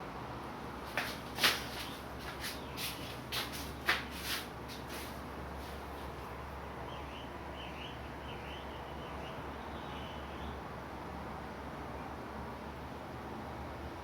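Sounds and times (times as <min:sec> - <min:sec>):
brush sweeping across paper: 0:01.4 - 0:06.1.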